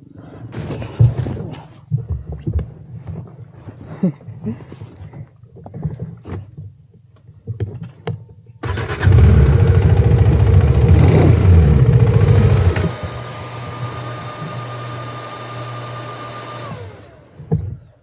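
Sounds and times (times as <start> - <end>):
motorcycle engine revving and idling: 8.6 - 17.9.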